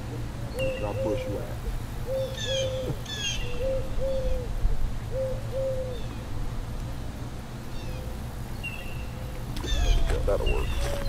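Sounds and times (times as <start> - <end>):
steady low rumble: 0.0 - 11.0
higher bird chirps: 0.5 - 4.5
bird hooting coos: 0.5 - 6.2, 9.0 - 11.0.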